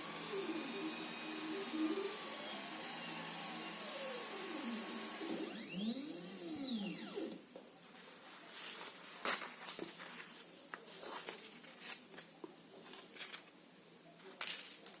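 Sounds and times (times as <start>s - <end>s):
fabric rustling and crinkling: 7.8s - 13.5s.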